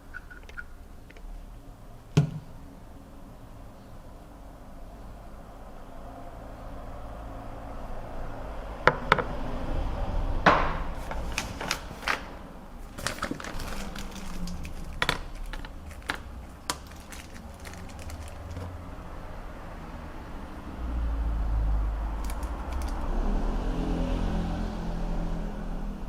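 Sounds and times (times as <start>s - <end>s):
clicks of small hard objects: 12.9s - 18.7s, 22.2s - 23.1s.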